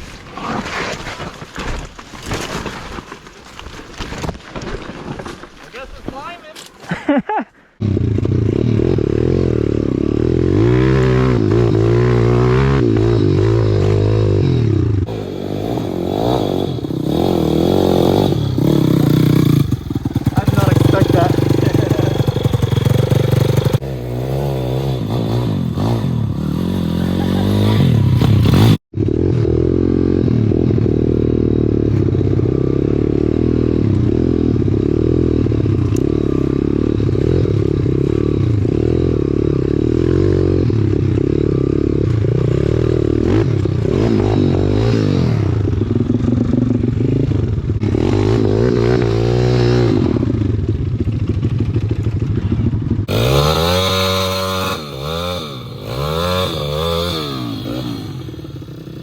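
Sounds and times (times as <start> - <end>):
small motorbike engine revving: 7.8 - 47.1, 53.0 - 59.0.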